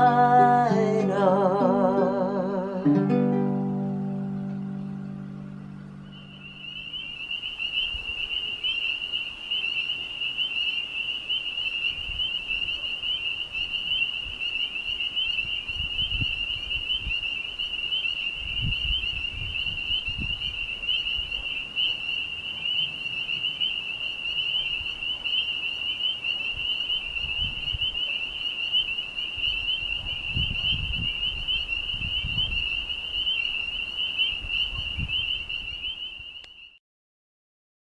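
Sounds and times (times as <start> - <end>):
low rumbles: 4.2 - 7.2
frogs trilling: 5.0 - 36.8.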